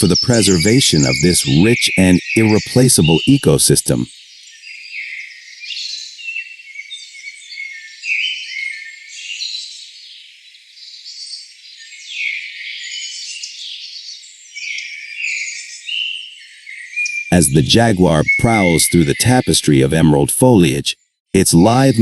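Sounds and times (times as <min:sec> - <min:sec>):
insects: 0:00.0 - 0:17.4
birds chirping and calling: 0:00.0 - 0:20.8.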